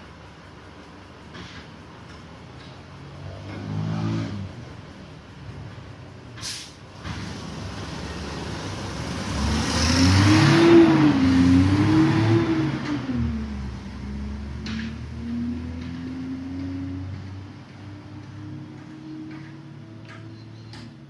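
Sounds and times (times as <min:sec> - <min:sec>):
motor vehicle passing: 0:03.0 - 0:04.9, 0:07.0 - 0:21.0
short hiss: 0:06.4 - 0:07.3.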